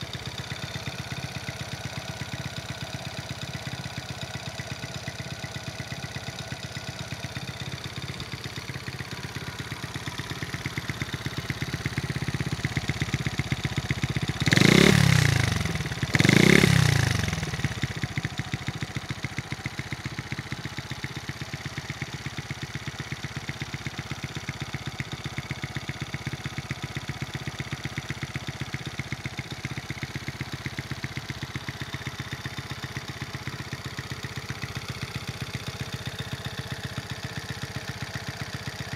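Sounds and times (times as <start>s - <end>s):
motorcycle engine idling: 0.0s - 38.9s
engine revving: 14.4s - 17.7s.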